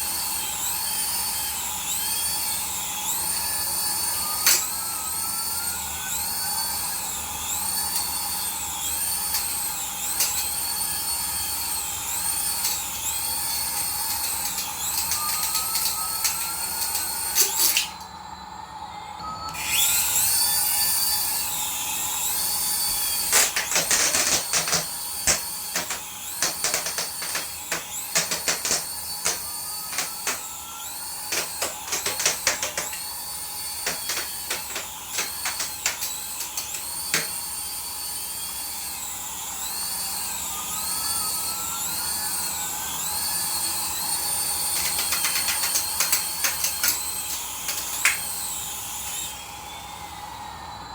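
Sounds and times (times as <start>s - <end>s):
small electric motor whirring: 0.0s - 18.2s, 19.5s - 50.5s
rapid plastic clicking: 12.5s - 17.9s, 23.3s - 30.5s, 31.3s - 33.1s, 33.8s - 37.4s, 44.7s - 48.3s.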